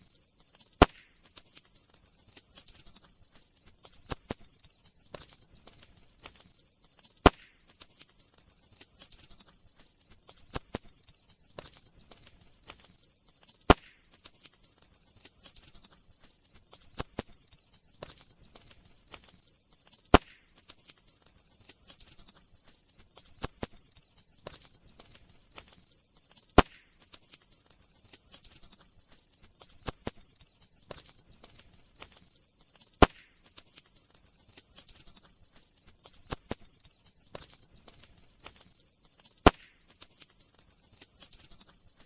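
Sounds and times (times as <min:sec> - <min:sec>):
campfire crackling: 0:00.0 - 0:42.0
loud fire pops: 0:00.8 - 0:01.6, 0:07.2 - 0:08.0, 0:13.7 - 0:14.2, 0:20.1 - 0:20.6, 0:26.6 - 0:27.1, 0:33.0 - 0:33.5, 0:39.4 - 0:39.9.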